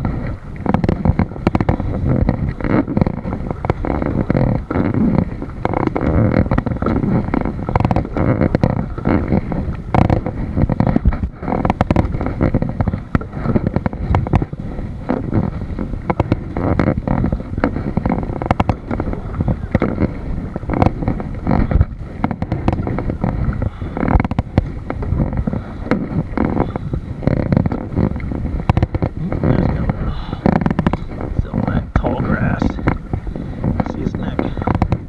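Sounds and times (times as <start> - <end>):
wind buffeting microphone: 0.0 - 35.0
knocks and bumps: 28.8 - 33.0.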